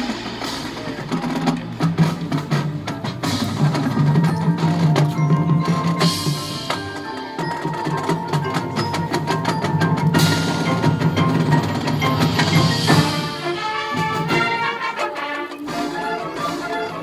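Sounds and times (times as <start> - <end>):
drum and mallet percussion: 0.0 - 17.0
bell-like and wood-block strikes: 3.7 - 13.5
brass and wind notes: 10.6 - 17.0.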